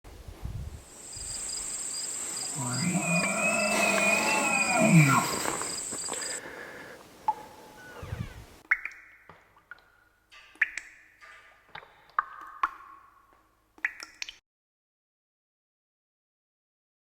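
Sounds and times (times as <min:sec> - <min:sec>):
high insect-like whine: 0:00.8 - 0:06.4
elk bugling: 0:01.0 - 0:08.6.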